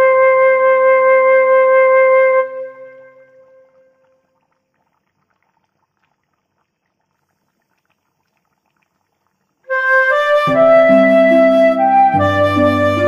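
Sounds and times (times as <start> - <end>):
instrumental background music: 9.7 - 13.0.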